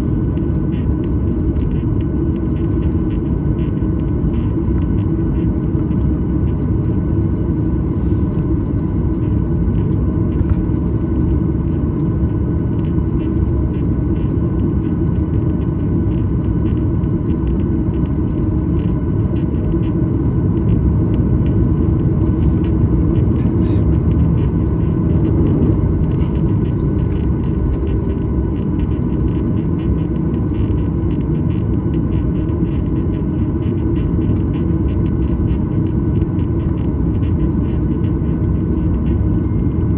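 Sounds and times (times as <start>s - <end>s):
faint engine whines: 0.0s - 39.9s.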